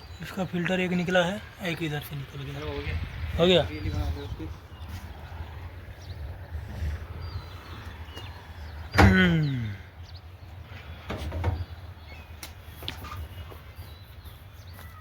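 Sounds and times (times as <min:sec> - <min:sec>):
steady low rumble: 0:00.9 - 0:08.9.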